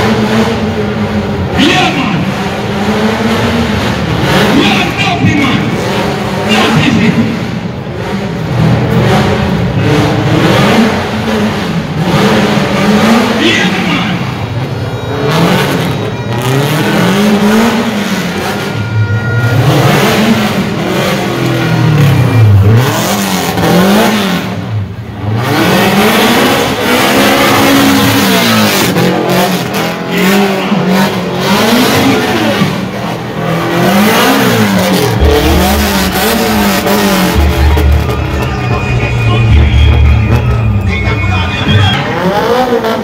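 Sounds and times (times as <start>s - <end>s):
car engine revving: 0.0s - 43.0s
loud rushing noise: 31.7s - 43.0s.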